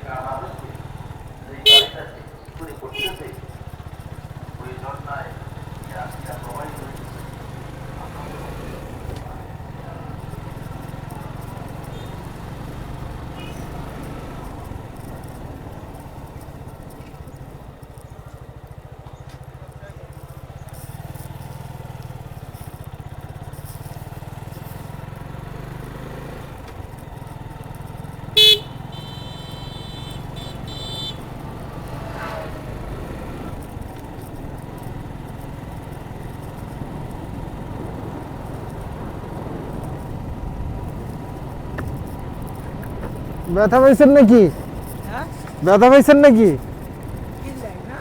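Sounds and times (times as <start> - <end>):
motorcycle engine running: 0.0 - 48.0
horn beeping: 0.5 - 5.1, 11.7 - 14.6, 28.3 - 33.0, 43.5 - 46.7.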